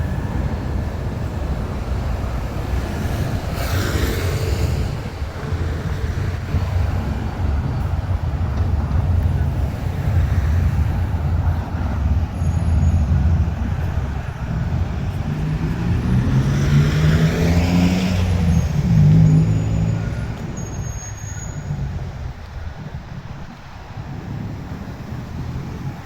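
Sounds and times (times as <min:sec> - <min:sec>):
steady low traffic rumble: 0:00.0 - 0:26.0
motor vehicle passing: 0:13.0 - 0:26.0.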